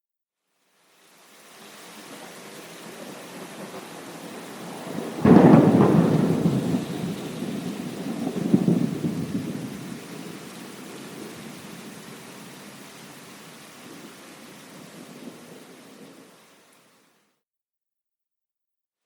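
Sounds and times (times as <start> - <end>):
steady rain: 0.4 - 17.4
thunder clap and rumbling: 2.9 - 12.1.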